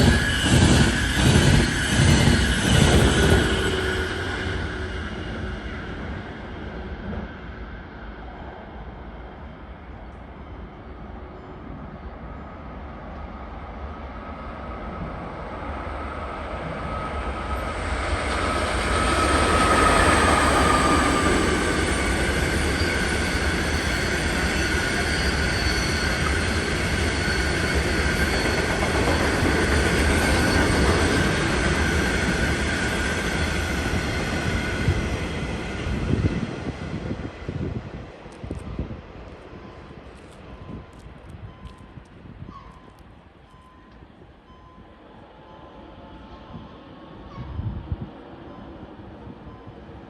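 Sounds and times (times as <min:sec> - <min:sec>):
train passing on tracks: 0:00.0 - 0:50.0
high whining tones: 0:16.6 - 0:36.0.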